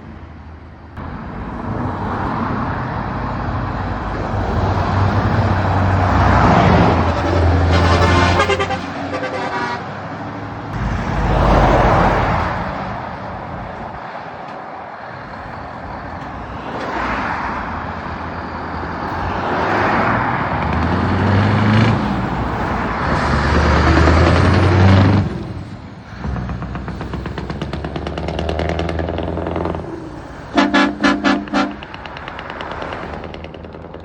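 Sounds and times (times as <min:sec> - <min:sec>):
heavy trucks driving past: 0:00.0 - 0:34.0.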